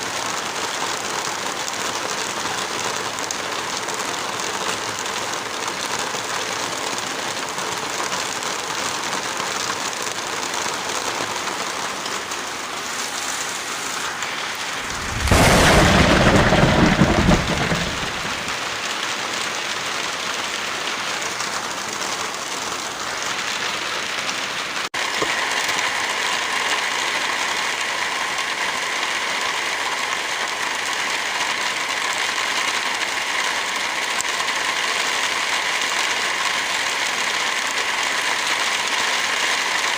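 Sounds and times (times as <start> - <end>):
heavy rain falling: 0.0 - 39.9
thunder rumble: 14.2 - 18.8.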